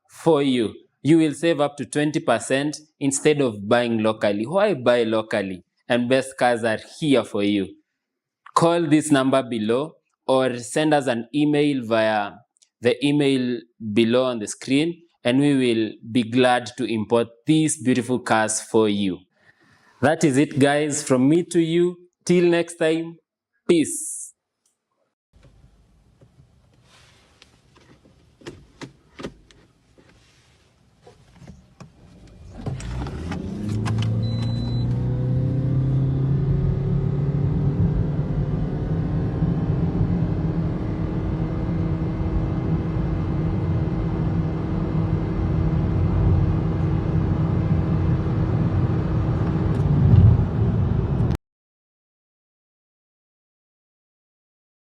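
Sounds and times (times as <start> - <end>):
car engine accelerating: 31.9 - 51.4.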